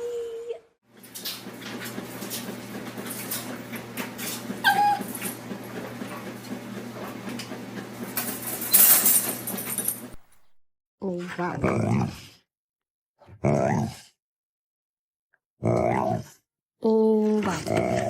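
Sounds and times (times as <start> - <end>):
dog whimpering: 4.6 - 5.3.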